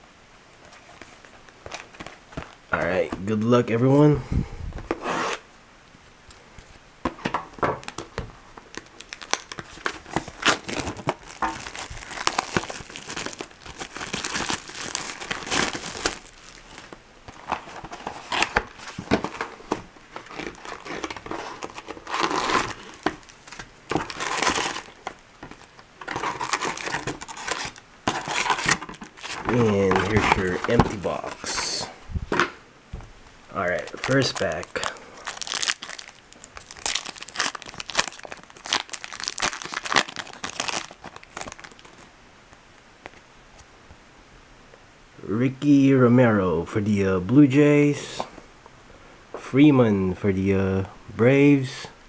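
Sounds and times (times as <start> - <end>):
plastic wrapping tearing and crinkling: 7.8 - 31.8, 33.5 - 42.1.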